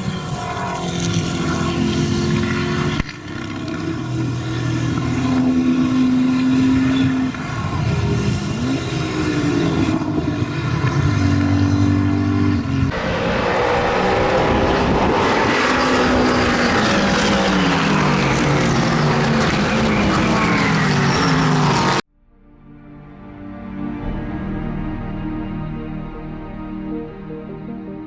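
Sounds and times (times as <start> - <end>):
race car engine revving: 0.0 - 22.0
race car passing by: 0.0 - 22.0.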